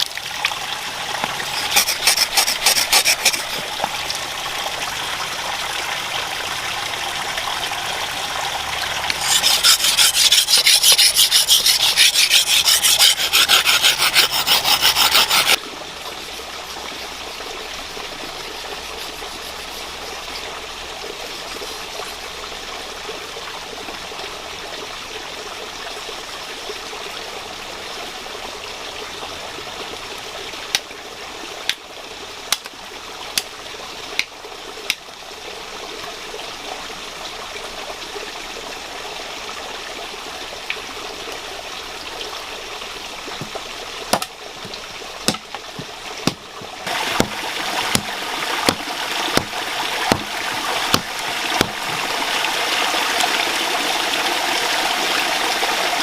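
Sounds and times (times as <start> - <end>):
running water rushing: 0.0 - 56.0
sharp knocks: 44.1 - 46.5, 47.2 - 48.8, 49.4 - 50.3.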